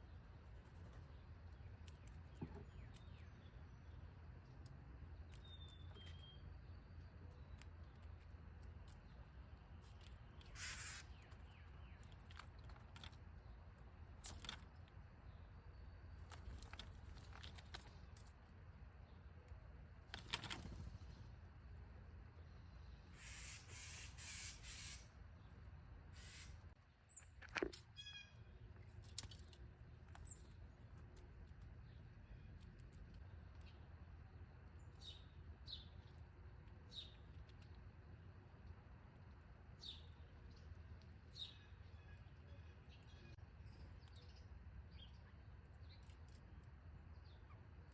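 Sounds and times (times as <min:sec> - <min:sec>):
faint bird chirps: 0:05.2 - 0:08.2, 0:08.9 - 0:12.4, 0:22.3 - 0:25.5, 0:26.1 - 0:28.7.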